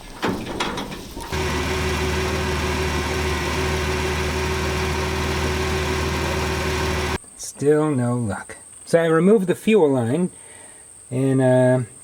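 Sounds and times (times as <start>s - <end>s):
clicks and knocks: 0.0s - 1.3s
vehicle mechanical drone: 1.3s - 7.2s.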